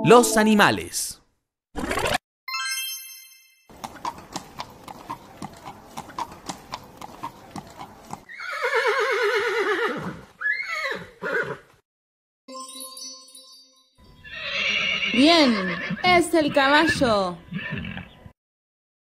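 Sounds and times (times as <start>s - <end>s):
horse hooves clip-clopping: 3.7s - 8.3s
horse neighing: 7.2s - 11.7s, 14.2s - 18.3s.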